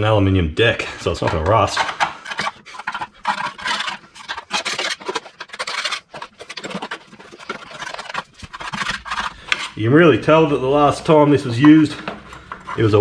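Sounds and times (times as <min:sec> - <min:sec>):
scraper blade scraping grass off metal: 0:01.7 - 0:09.8.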